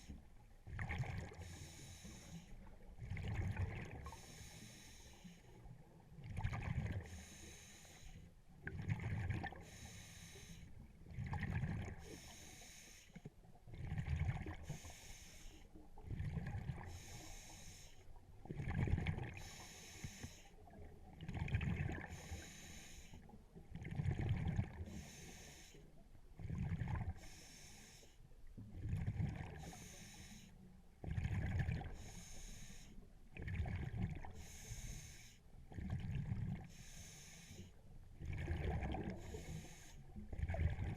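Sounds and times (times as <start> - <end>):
exhaled bubbles gurgling: 0.0 - 4.5, 5.7 - 7.4, 8.6 - 9.9, 10.8 - 12.4, 13.6 - 15.0, 15.9 - 17.4, 18.4 - 19.7, 20.6 - 22.5, 23.6 - 25.5, 26.4 - 27.6, 28.6 - 30.1, 31.0 - 32.3, 33.3 - 35.1, 35.7 - 37.4, 38.2 - 40.9
regulator hiss on inhale: 1.4 - 2.6, 4.0 - 5.6, 7.0 - 8.3, 9.6 - 10.8, 12.0 - 13.3, 14.6 - 15.7, 16.8 - 18.1, 19.4 - 20.6, 22.0 - 23.4, 24.9 - 26.0, 27.2 - 28.2, 29.6 - 30.6, 31.9 - 33.0, 34.3 - 35.5, 36.6 - 37.8, 39.2 - 40.1.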